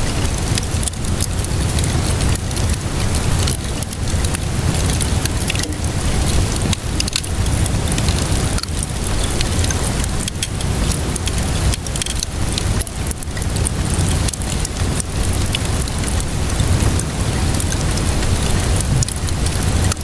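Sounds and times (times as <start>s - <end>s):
steady rainfall: 0.0s - 20.0s
wood fire crackling: 0.0s - 20.0s
low rumble: 1.3s - 8.2s.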